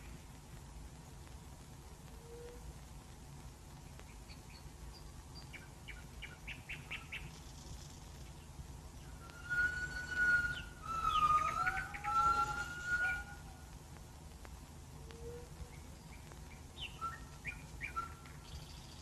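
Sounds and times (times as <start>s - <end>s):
birds chirping: 3.8s - 13.7s, 15.2s - 19.0s
bird whistling long notes: 9.0s - 13.7s, 16.8s - 19.0s.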